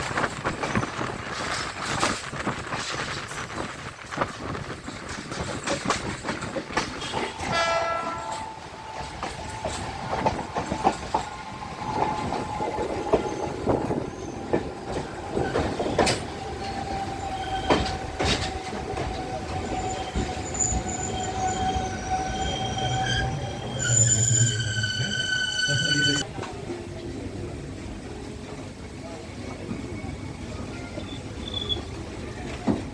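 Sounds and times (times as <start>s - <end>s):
train wheels clicking on rails: 0.0s - 25.2s
train horn toot: 7.0s - 9.8s
train wheels squealing: 7.0s - 14.6s, 15.4s - 26.2s, 29.6s - 32.0s.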